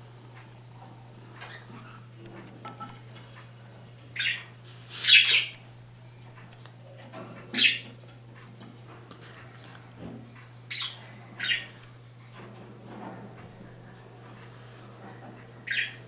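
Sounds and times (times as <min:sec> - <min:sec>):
steady low hum: 0:00.0 - 0:16.0
parrot harsh calls: 0:04.2 - 0:05.5, 0:07.5 - 0:07.9, 0:10.7 - 0:11.7, 0:15.6 - 0:16.0.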